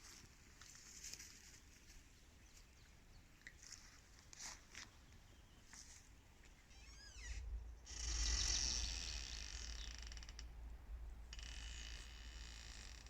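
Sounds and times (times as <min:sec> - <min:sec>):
trees creaking: 0:06.7 - 0:13.0.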